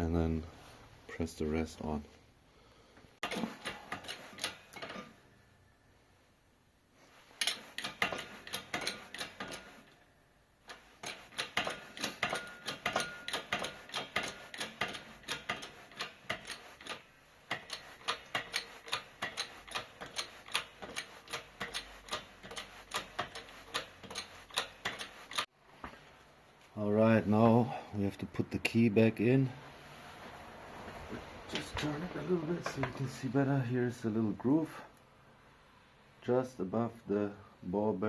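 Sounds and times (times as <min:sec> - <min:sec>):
shop press clicking: 0:07.4 - 0:09.8, 0:10.7 - 0:25.4.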